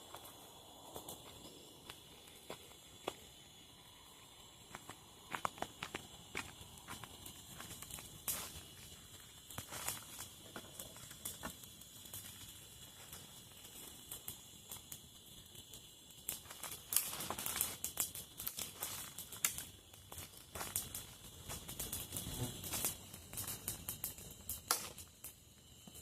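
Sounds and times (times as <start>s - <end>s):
dry leaves crackling and rustling: 16.4s - 19.6s.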